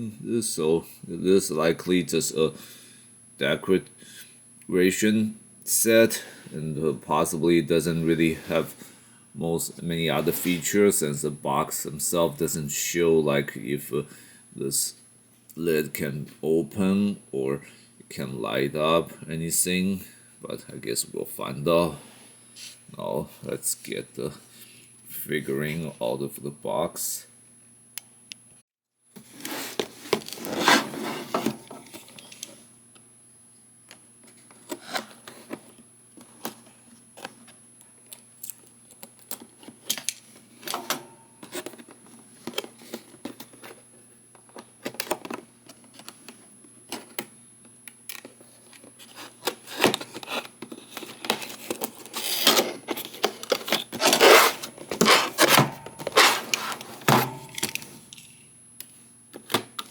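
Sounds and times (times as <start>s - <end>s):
cardboard packaging being handled: 29.2s - 32.2s, 48.2s - 58.0s.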